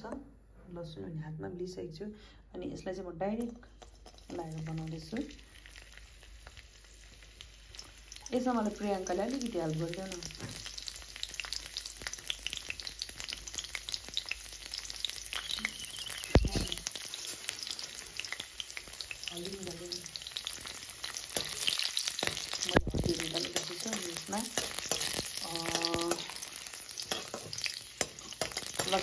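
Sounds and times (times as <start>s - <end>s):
garlic sizzling in oil: 3.8s - 29.0s
metal ladle stirring in wok: 20.6s - 25.4s, 26.2s - 29.0s.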